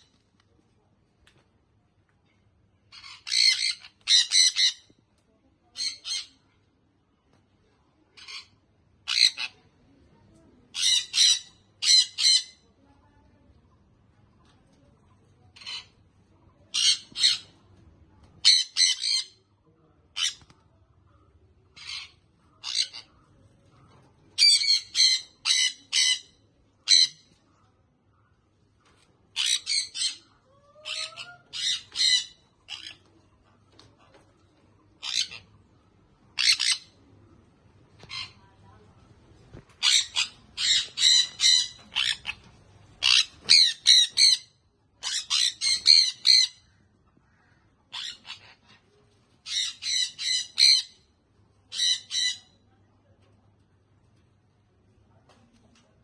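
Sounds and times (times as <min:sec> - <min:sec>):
parrot squawking: 0:02.9 - 0:04.9, 0:09.1 - 0:09.6, 0:10.7 - 0:12.6, 0:16.7 - 0:17.5, 0:18.4 - 0:19.4, 0:21.8 - 0:23.1, 0:24.4 - 0:26.3, 0:26.9 - 0:27.3, 0:29.4 - 0:33.0, 0:35.0 - 0:35.5, 0:36.4 - 0:37.0, 0:39.8 - 0:46.7, 0:47.9 - 0:48.8, 0:49.4 - 0:51.0, 0:51.7 - 0:52.6.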